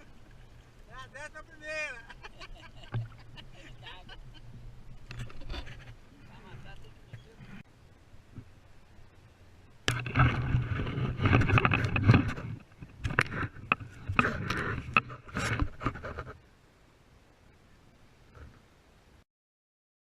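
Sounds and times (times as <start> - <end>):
water splashing on kayak: 9.8 - 16.3.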